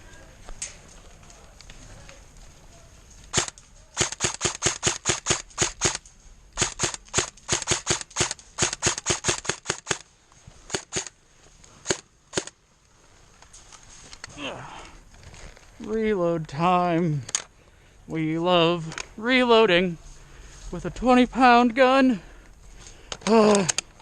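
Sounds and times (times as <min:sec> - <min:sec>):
airsoft gun firing shots: 0:03.3 - 0:06.0, 0:06.6 - 0:10.0, 0:10.7 - 0:11.1, 0:11.8 - 0:12.5.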